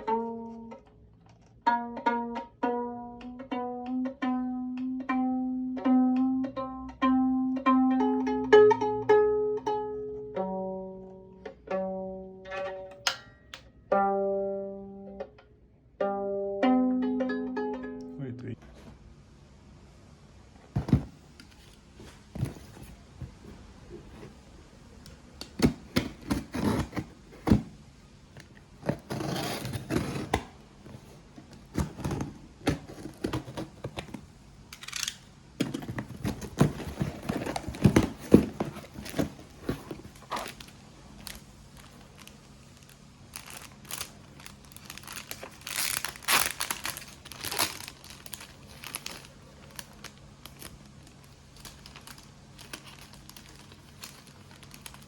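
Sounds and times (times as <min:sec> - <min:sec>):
packaging crinkling: 0:35.8 - 0:55.0.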